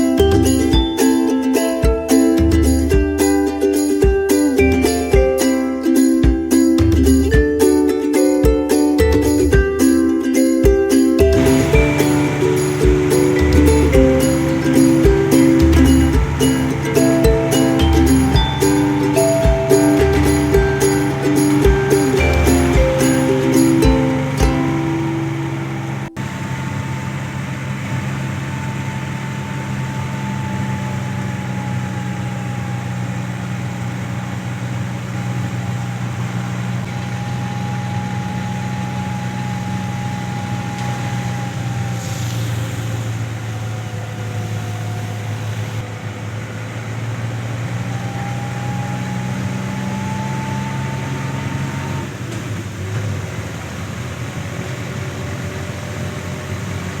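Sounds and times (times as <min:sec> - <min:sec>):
car engine humming: 0:00.0 - 0:08.1, 0:11.2 - 0:57.0
road noise: 0:00.0 - 0:10.2, 0:11.0 - 0:57.0
faint drifting tone: 0:11.4 - 0:46.0.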